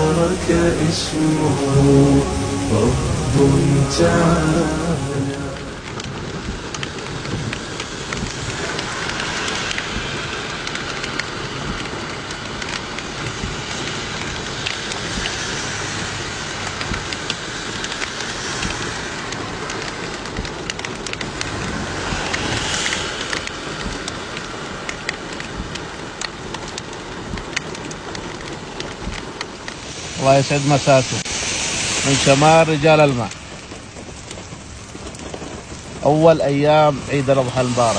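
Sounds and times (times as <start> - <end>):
heavy rain falling: 0.0 - 37.9
raindrops ticking on hard surfaces: 0.0 - 37.9.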